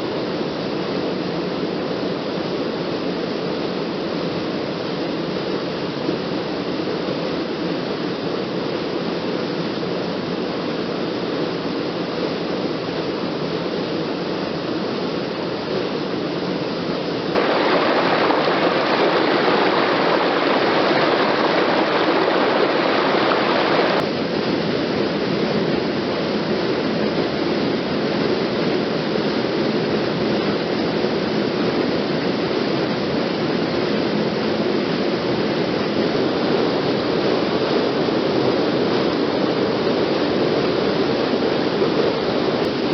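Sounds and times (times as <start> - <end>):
waterfall and stream rushing: 12.9 - 42.9.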